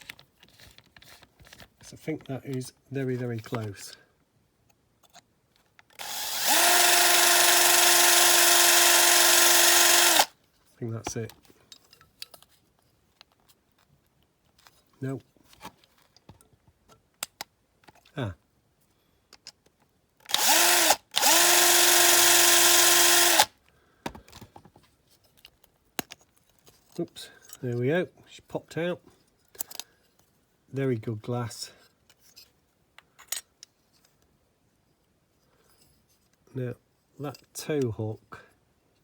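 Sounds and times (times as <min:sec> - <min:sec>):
small electric drill drilling: 0:05.9 - 0:10.3, 0:20.3 - 0:23.5.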